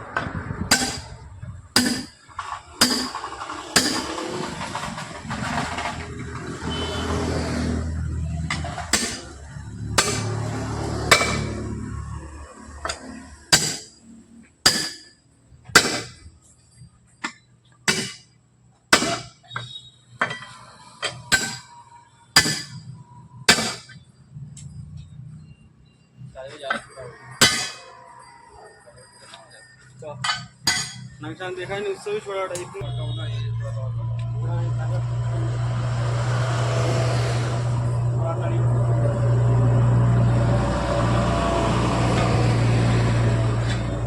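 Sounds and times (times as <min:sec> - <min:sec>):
hammer striking steel wheel rim: 0:00.2 - 0:01.2, 0:01.8 - 0:04.2, 0:08.4 - 0:09.4, 0:10.0 - 0:10.5, 0:11.1 - 0:11.7, 0:12.9 - 0:14.0, 0:14.7 - 0:16.2, 0:17.2 - 0:18.3, 0:19.0 - 0:21.8, 0:22.4 - 0:22.9, 0:23.5 - 0:24.0, 0:27.4 - 0:27.9, 0:30.2 - 0:31.1.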